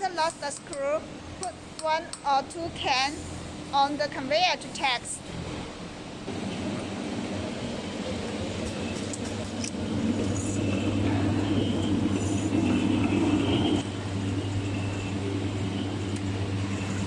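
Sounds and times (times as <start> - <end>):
machine motor hum: 6.3 - 17.0.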